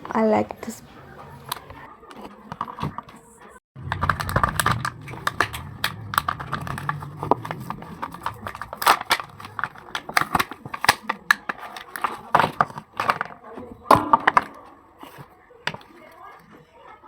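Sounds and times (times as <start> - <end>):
packaging paper crackling: 3.8 - 16.3.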